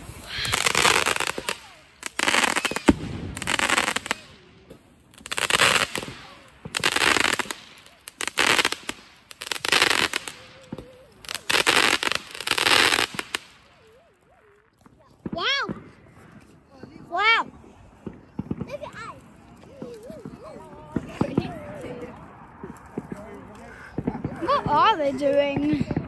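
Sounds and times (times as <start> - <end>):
fireworks crackling and hissing: 0.0 - 26.0.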